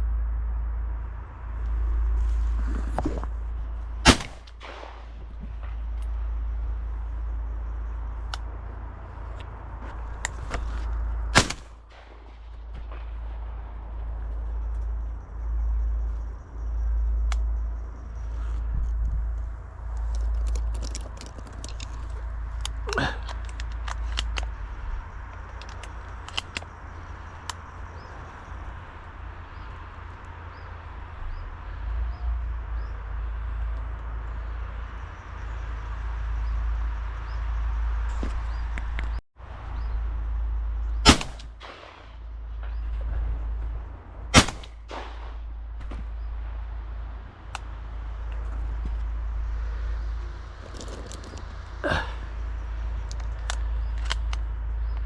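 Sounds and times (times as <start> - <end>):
shotgun shots with echo: 4.0 - 5.3, 11.3 - 13.2, 41.0 - 42.2, 44.3 - 45.4
small clicks and ticks: 17.2 - 27.8, 47.5 - 51.8, 52.8 - 55.0.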